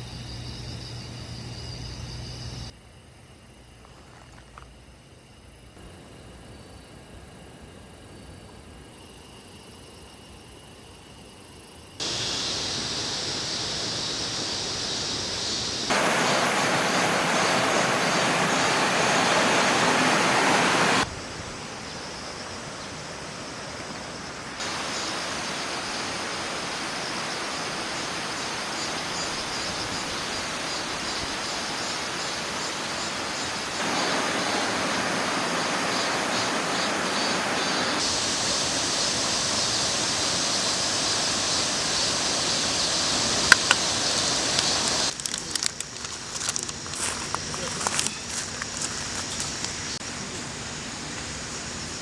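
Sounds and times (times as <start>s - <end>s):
steady rushing outdoor noise: 12.0s - 52.0s.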